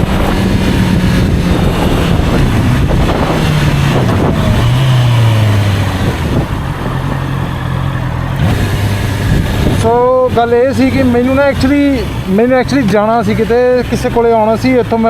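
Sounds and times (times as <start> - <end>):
wind noise on microphone: 0.0 - 11.4
motorcycle engine running: 0.0 - 15.0.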